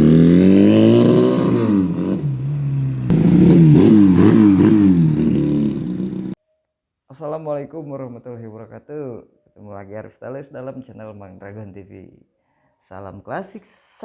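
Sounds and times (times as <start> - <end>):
motorcycle engine revving: 0.0 - 6.4.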